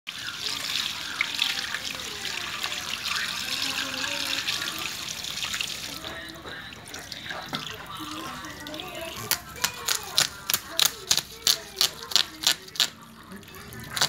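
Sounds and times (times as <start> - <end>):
faint voices: 0.1 - 14.0
water running from a tap: 0.1 - 14.0.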